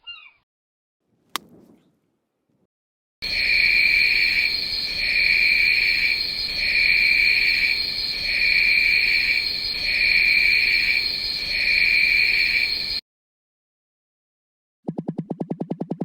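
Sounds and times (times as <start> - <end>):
night insects chirring: 3.2 - 13.0.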